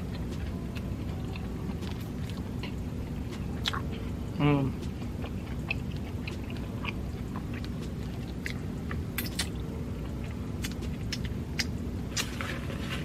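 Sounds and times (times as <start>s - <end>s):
close chewing with wet mouth clicks: 0.1s - 4.1s, 4.8s - 12.3s.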